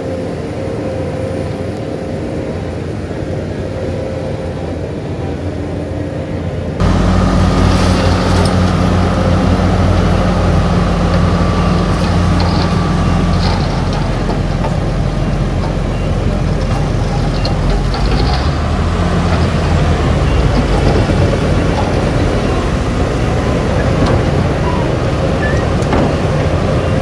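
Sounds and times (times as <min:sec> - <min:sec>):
heavy machinery diesel engine: 0:06.8 - 0:27.0.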